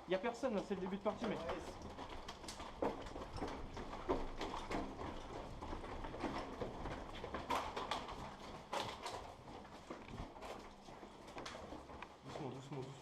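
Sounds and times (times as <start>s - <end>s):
running footsteps on hard floor: 0.0s - 13.0s.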